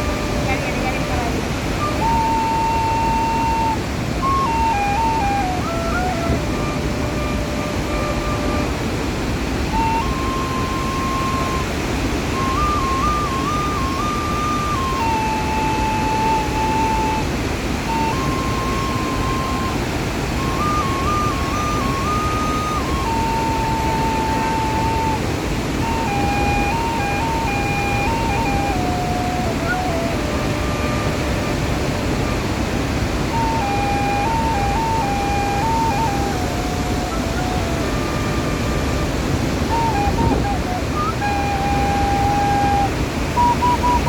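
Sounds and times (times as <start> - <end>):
thin whistled tone: 0.0 - 8.8, 9.7 - 17.3, 17.9 - 32.4, 33.3 - 44.0
waterfall rushing: 0.0 - 44.0.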